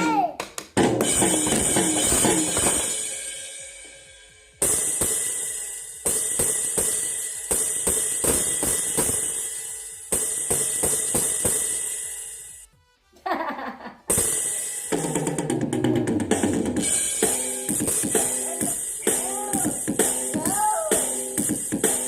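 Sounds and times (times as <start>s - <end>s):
child's voice: 0.0s - 0.4s, 18.4s - 21.0s
drum hits: 0.8s - 3.2s, 4.6s - 9.4s, 10.1s - 11.9s, 14.1s - 22.0s.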